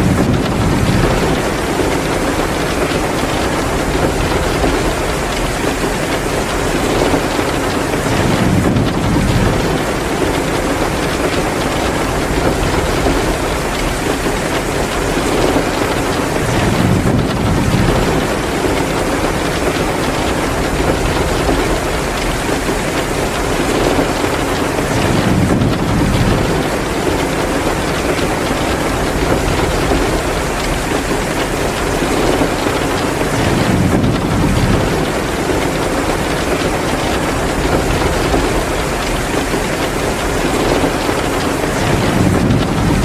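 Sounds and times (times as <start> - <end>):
heavy rain: 0.0 - 43.0.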